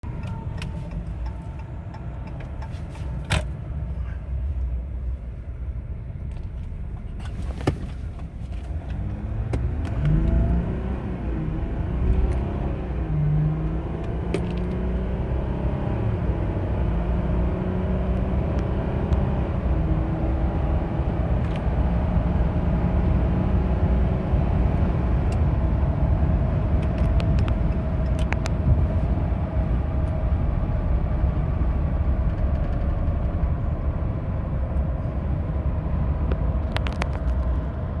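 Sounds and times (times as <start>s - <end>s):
road noise: 0.0s - 38.0s
diesel engine accelerating hard: 8.6s - 38.0s.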